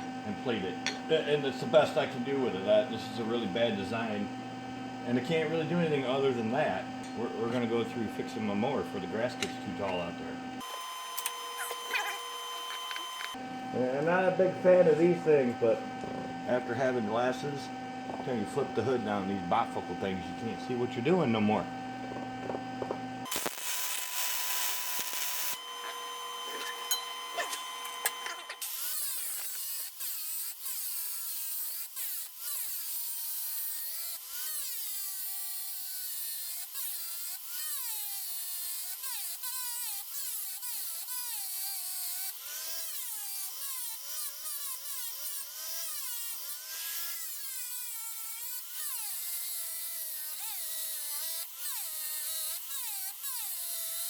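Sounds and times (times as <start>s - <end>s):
welding arc crackling and sizzling: 23.2s - 32.7s.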